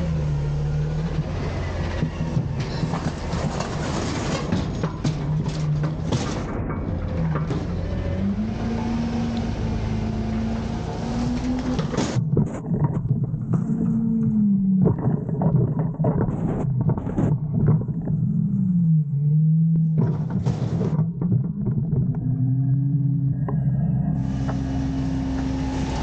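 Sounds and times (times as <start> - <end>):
diesel engine revving: 0.0 - 4.5, 5.4 - 12.2, 22.1 - 26.0
clanks and bangs of bins: 1.4 - 9.0, 10.8 - 18.1, 19.9 - 22.3.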